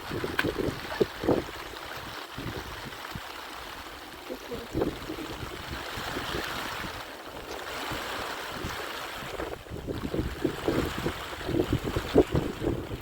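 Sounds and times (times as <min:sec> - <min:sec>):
wind: 0:00.0 - 0:13.0
heavy rain hissing: 0:03.8 - 0:05.5.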